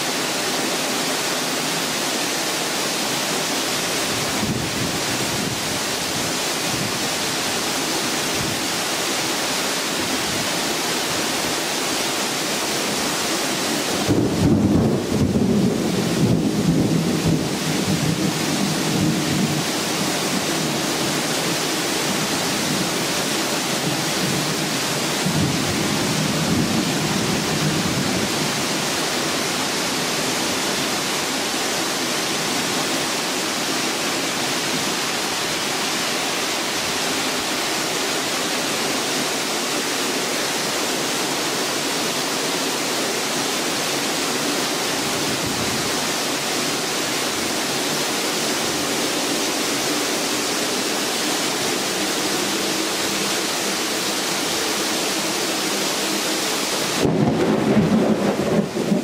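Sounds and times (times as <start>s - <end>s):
heavy rain pouring: 0.0s - 59.0s
low thunder rumble: 57.0s - 59.0s.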